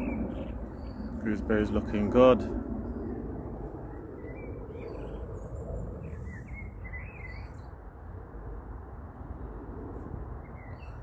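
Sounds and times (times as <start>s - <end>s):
small birds chirping: 0.0s - 2.1s, 2.8s - 7.8s, 10.4s - 11.0s
low outdoor rumble: 0.0s - 11.0s.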